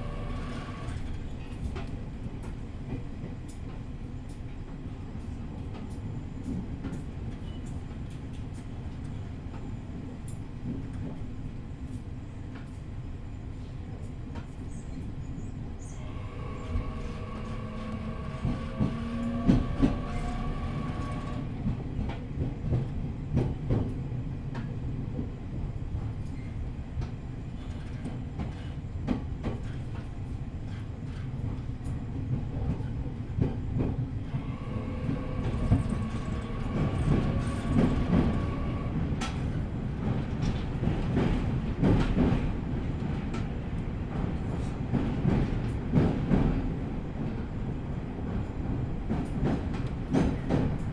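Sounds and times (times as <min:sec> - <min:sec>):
traction motor whine: 0:00.0 - 0:01.0, 0:16.0 - 0:21.5, 0:34.4 - 0:39.0
train running rumble: 0:00.0 - 0:50.9.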